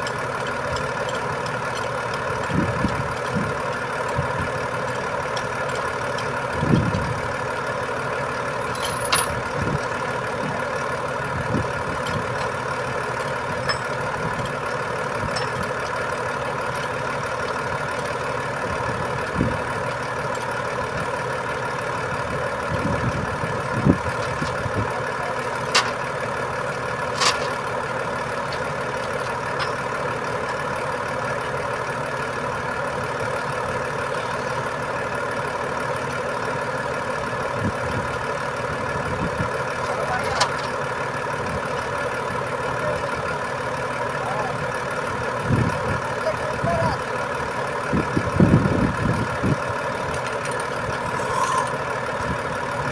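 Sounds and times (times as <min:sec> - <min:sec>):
heavy truck engine running: 0:00.0 - 0:52.9.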